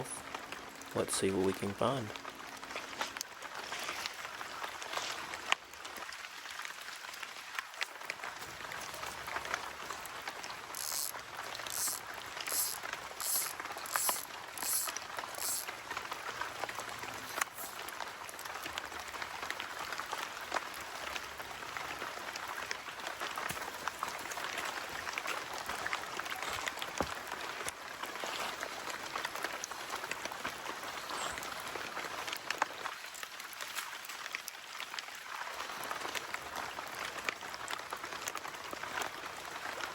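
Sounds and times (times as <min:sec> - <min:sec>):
rain pattering: 0:00.0 - 0:39.9
high clicks: 0:10.8 - 0:15.7.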